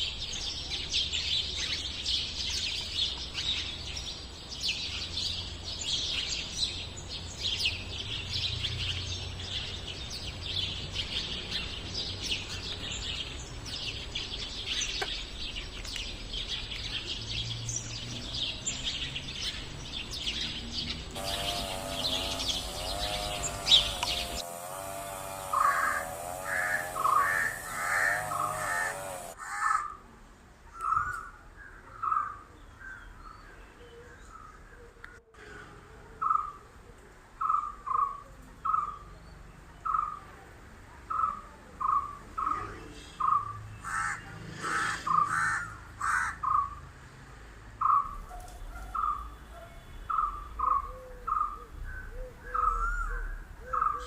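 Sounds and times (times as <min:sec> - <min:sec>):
small birds chirping: 0:00.0 - 0:29.4, 0:47.8 - 0:54.0
single bird calling: 0:25.5 - 0:29.8.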